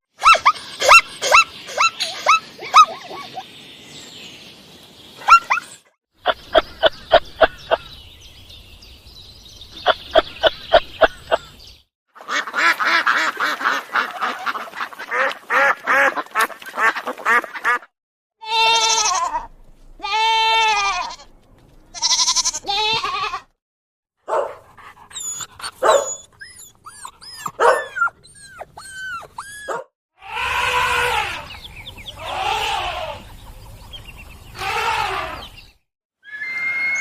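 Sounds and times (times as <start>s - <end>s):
ducks quacking: 12.2s - 17.9s.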